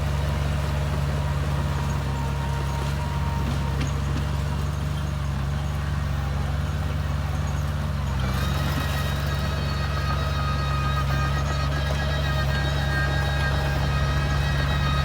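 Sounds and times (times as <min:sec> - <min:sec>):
bulldozer diesel engine running: 0:00.0 - 0:15.0
high-pitched whine: 0:13.4 - 0:15.0.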